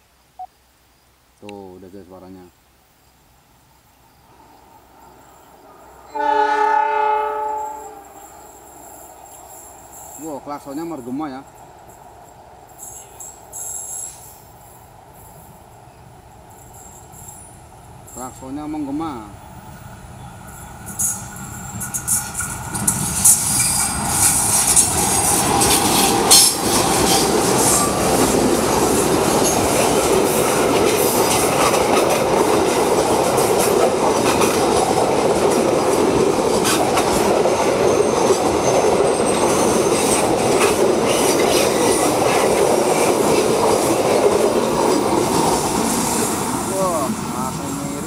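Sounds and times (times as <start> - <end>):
passenger train passing: 4.1 - 48.0
wheels clicking on rails: 21.0 - 48.0.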